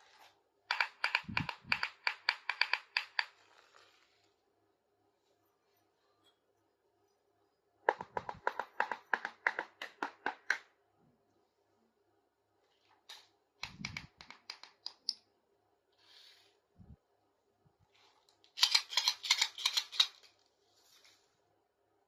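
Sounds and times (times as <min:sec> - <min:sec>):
plastic toy pieces clicking: 0:00.7 - 0:03.4, 0:13.1 - 0:15.2, 0:18.5 - 0:20.3
soft rustle: 0:03.4 - 0:04.5, 0:20.2 - 0:21.5.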